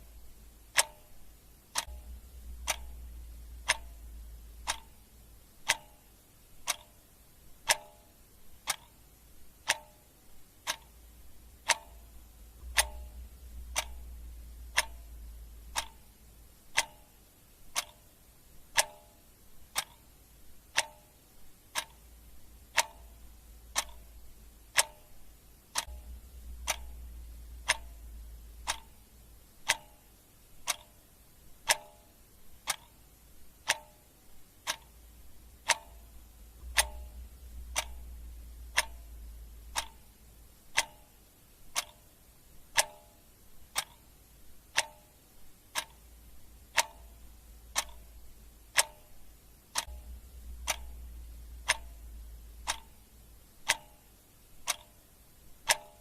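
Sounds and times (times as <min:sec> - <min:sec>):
clock ticking: 0:00.0 - 0:56.0
low hum: 0:01.9 - 0:05.7, 0:11.0 - 0:16.8, 0:25.9 - 0:29.5, 0:35.0 - 0:40.7, 0:49.9 - 0:53.5.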